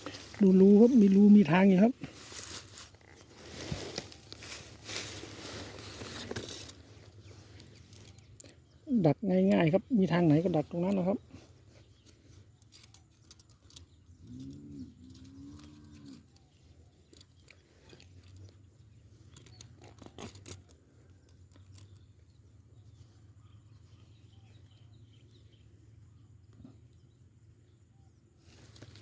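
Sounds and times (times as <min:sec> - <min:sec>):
rustling in grass: 0:00.0 - 0:12.6, 0:28.4 - 0:29.0.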